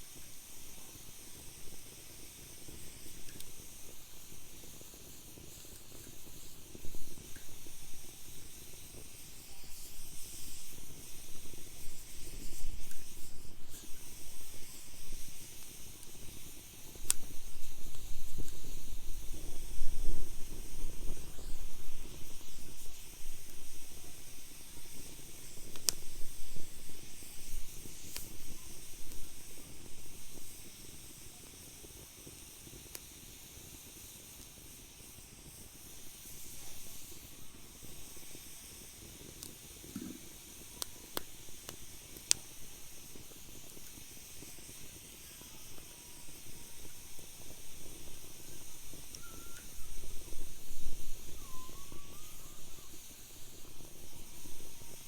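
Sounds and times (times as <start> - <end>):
fire crackling pops: 0.0 - 55.0
fire hissing: 0.0 - 55.0.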